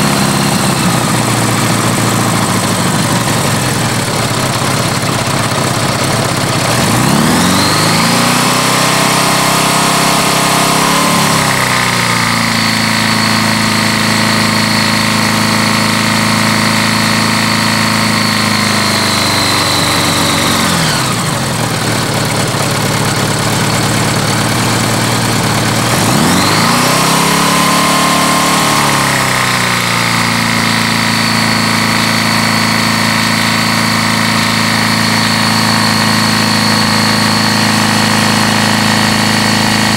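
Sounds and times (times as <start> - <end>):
motorcycle engine revving: 0.0 - 39.9
engine bearings knocking: 0.8 - 7.8, 21.5 - 26.5.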